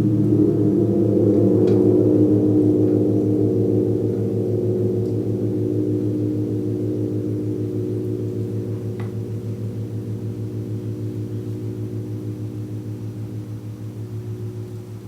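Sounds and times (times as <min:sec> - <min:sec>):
gong ringing: 0:00.0 - 0:15.0.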